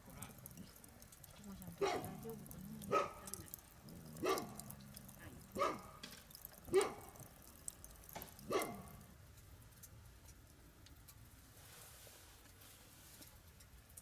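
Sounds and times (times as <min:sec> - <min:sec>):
dog barking: 0:01.8 - 0:03.4, 0:04.0 - 0:06.0, 0:06.6 - 0:07.2, 0:08.4 - 0:09.0.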